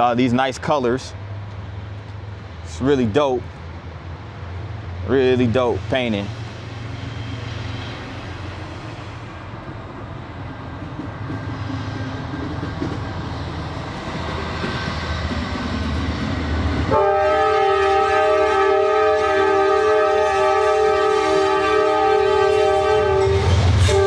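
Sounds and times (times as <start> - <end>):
train rumbling: 0.0 - 24.0
train air horn: 16.9 - 24.0.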